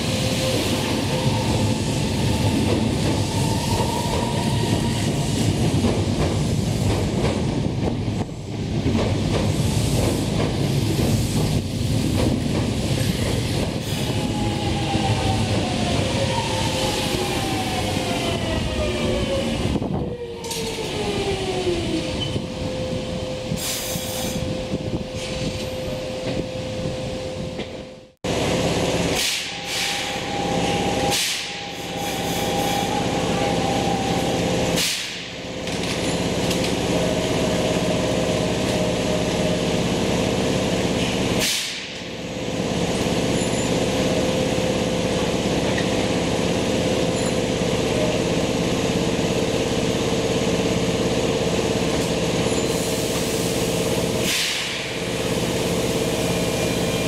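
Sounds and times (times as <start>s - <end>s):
electric train humming: 0.0s - 57.0s
air brake hisses: 23.6s - 24.4s, 29.2s - 32.9s, 34.8s - 35.3s, 41.4s - 42.0s, 52.8s - 55.0s.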